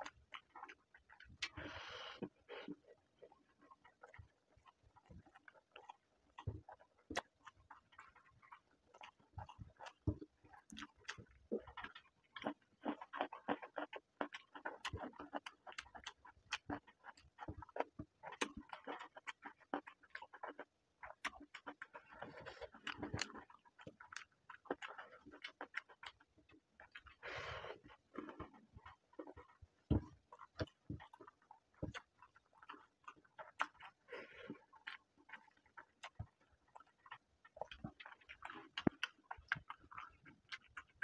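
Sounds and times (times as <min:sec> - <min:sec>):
wet chewing and lip-smacking: 0:00.0 - 0:41.0.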